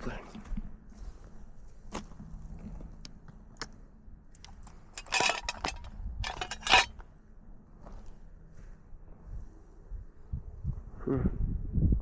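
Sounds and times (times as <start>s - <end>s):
scrapes and clicks of handling: 4.4s - 6.9s.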